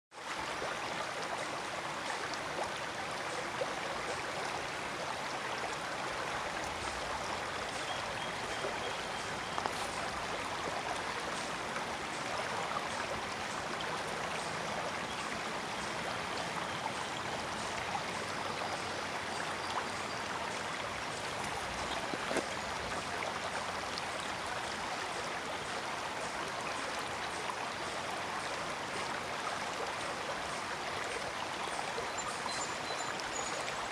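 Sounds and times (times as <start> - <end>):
brook rushing water: 0.1 - 33.9
small splashes and drips: 21.2 - 23.4.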